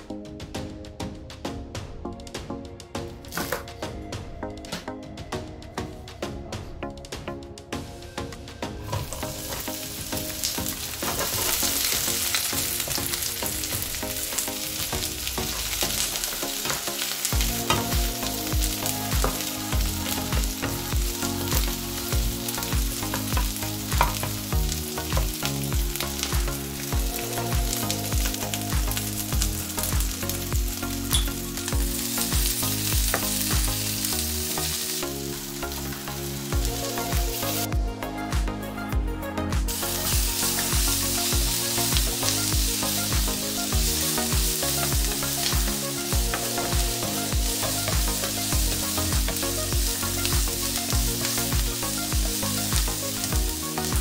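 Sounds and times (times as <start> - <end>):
background music with steady beat: 0.0 - 54.0
shallots sizzling in oil: 8.8 - 37.7, 39.7 - 54.0.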